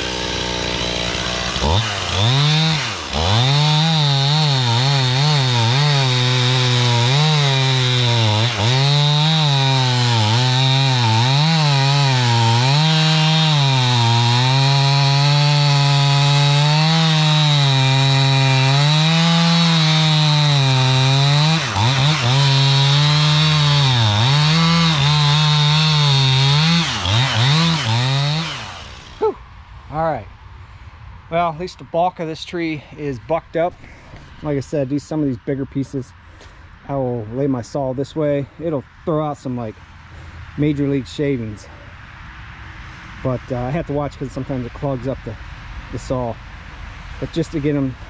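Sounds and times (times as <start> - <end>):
chainsaw cutting log: 0.0 - 29.4.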